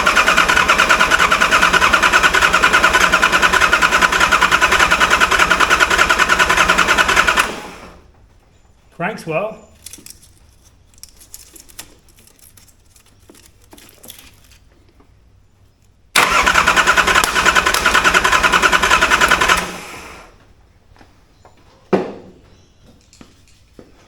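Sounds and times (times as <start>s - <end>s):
diesel engine cranking: 0.0s - 8.1s, 16.1s - 20.4s.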